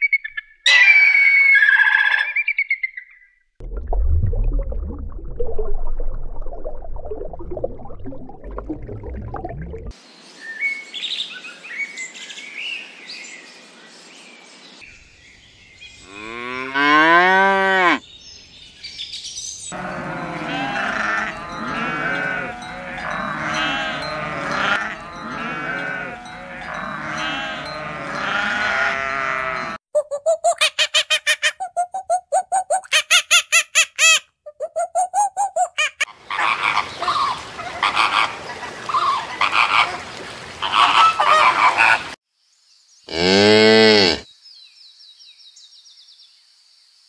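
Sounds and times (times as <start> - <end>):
low rumbling noise: 3.6 - 9.9
cow mooing: 16.1 - 18.0, 19.7 - 29.8, 43.1 - 44.2
overlapping animal calls: 19.7 - 42.2.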